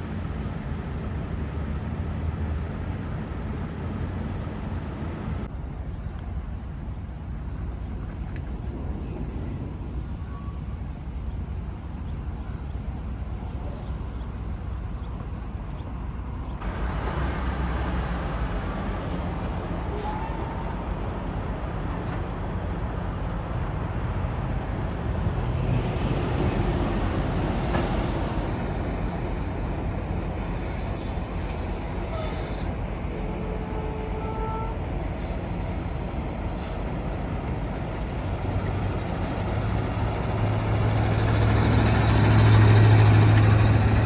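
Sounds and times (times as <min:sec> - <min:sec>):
highway traffic rumble: 0:00.0 - 0:44.0
truck passing: 0:16.6 - 0:33.8, 0:34.4 - 0:44.0.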